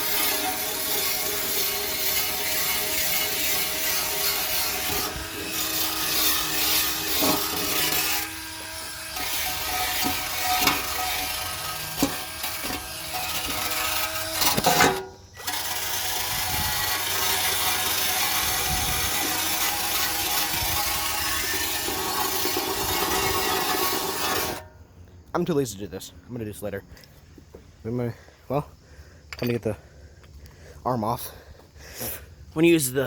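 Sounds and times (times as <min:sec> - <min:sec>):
metal housing scraped by hand: 0:00.0 - 0:24.7.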